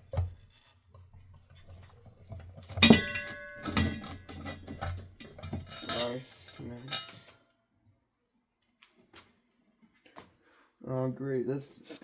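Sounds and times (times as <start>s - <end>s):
light metal knocks and clinks: 2.6s - 7.4s
metallic clank ringing: 2.6s - 7.4s.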